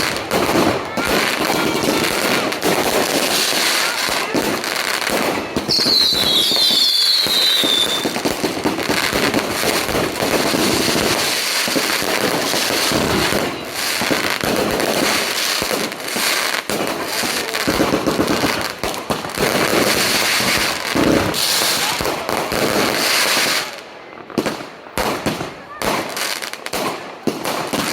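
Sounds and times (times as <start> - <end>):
firecrackers crackling: 0.0 - 27.9
falling firework whistles: 1.8 - 14.3.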